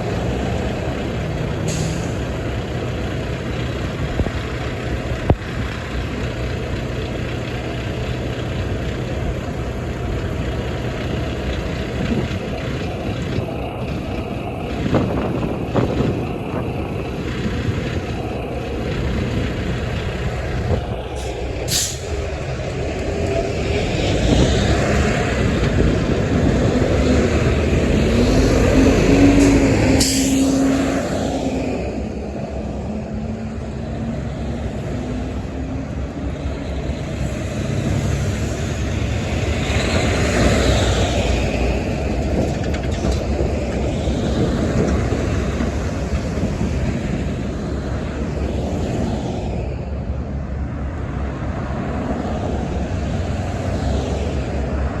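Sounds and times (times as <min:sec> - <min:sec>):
truck engine rumble: 0:00.0 - 0:55.0
short air hisses: 0:01.7 - 0:02.2, 0:21.2 - 0:22.2, 0:29.4 - 0:30.6.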